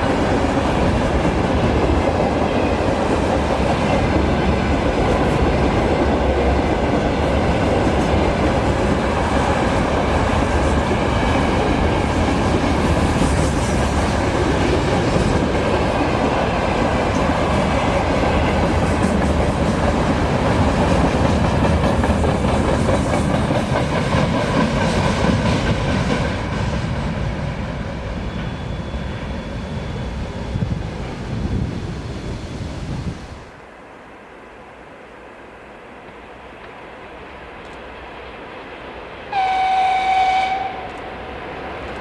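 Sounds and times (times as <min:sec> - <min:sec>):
freight train wheels clattering: 0:00.0 - 0:29.3.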